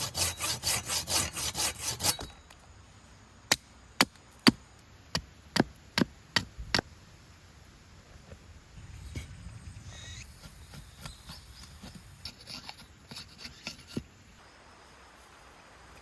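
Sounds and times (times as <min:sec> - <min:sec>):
hand saw cutting wood: 0:00.0 - 0:02.4, 0:10.4 - 0:14.1.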